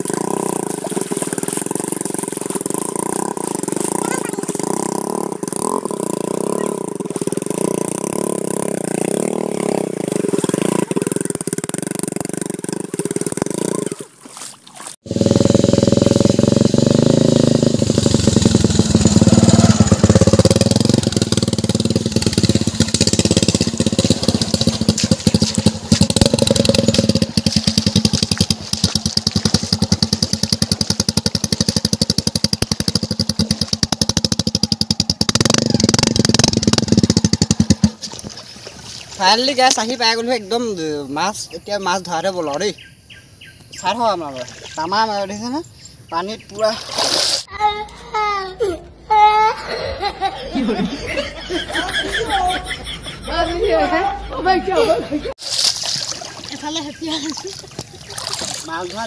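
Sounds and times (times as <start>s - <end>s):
motorcycle engine revving: 0.0s - 14.2s, 14.9s - 40.9s.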